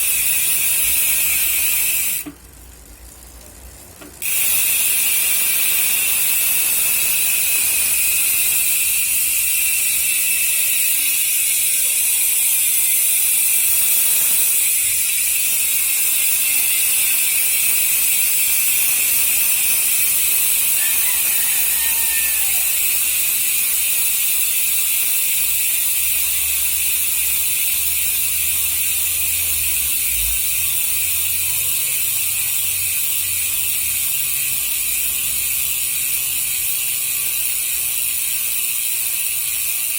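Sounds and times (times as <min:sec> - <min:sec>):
bicycle hub ratcheting buzz: 0:00.0 - 0:39.9.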